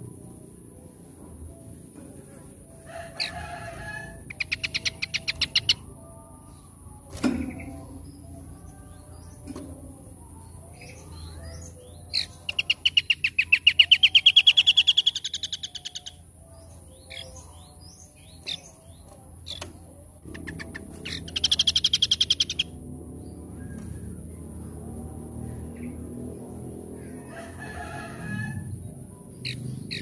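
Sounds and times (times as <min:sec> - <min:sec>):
small songbirds chirping: 0:04.3 - 0:26.4, 0:28.9 - 0:30.0
bird rapid trill: 0:12.1 - 0:16.2, 0:20.3 - 0:22.8.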